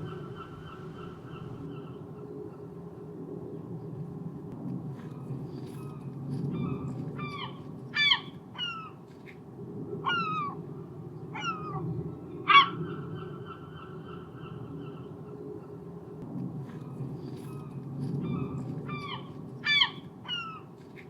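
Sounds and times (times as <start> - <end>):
gulls calling: 0.0 - 2.7
steady low rumble: 0.0 - 8.6, 9.4 - 20.2.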